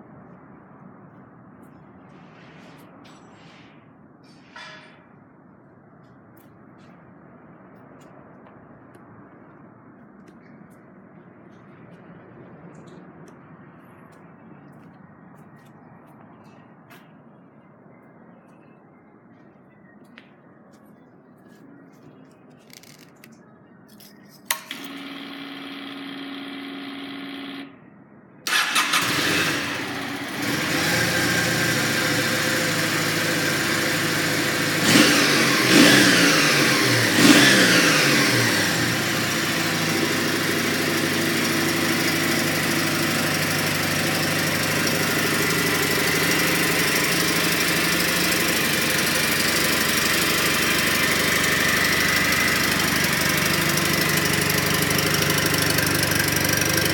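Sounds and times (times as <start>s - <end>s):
motorcycle engine starting: 24.5s - 27.8s, 28.5s - 56.9s
motorcycle engine idling: 28.5s - 56.9s.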